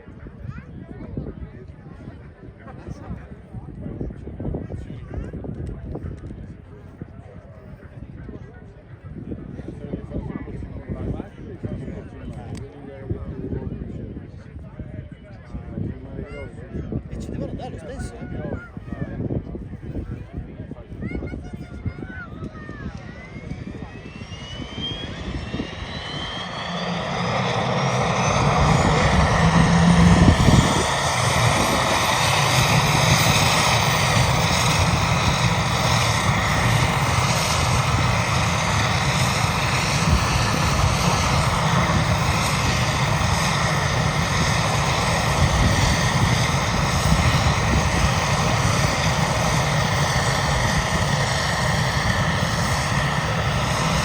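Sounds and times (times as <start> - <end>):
helicopter turbine engines whining: 16.5 - 54.0.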